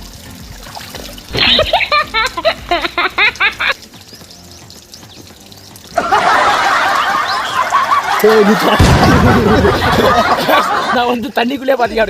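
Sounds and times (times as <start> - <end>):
loud water splashing: 5.8 - 10.9.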